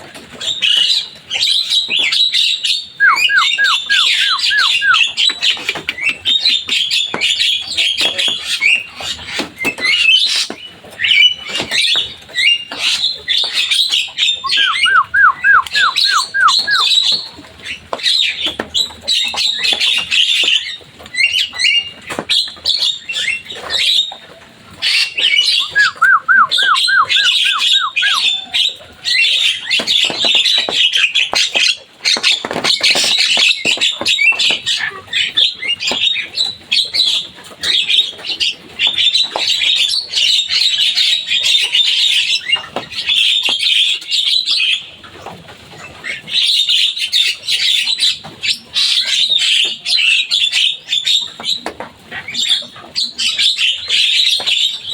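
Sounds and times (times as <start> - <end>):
myna chattering: 14.4 - 16.9.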